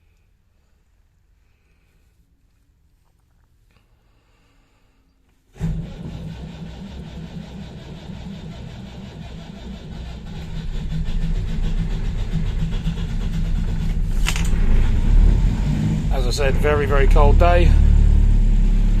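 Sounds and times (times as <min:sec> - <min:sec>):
diesel engine starting and running: 0:05.5 - 0:19.0.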